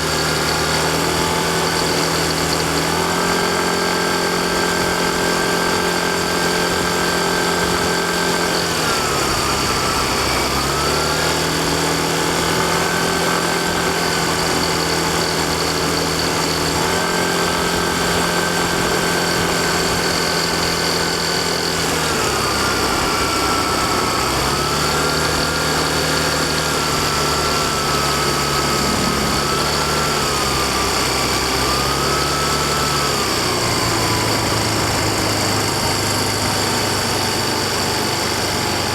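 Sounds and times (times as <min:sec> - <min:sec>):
scooter engine running: 0:00.0 - 0:38.9
steady rushing noise: 0:27.5 - 0:31.9.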